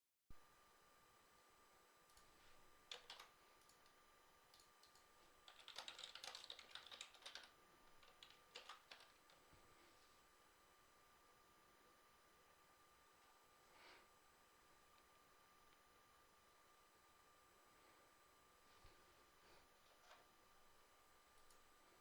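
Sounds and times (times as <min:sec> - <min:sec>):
faint typing on computer keyboard: 0:02.0 - 0:09.6, 0:21.3 - 0:21.7.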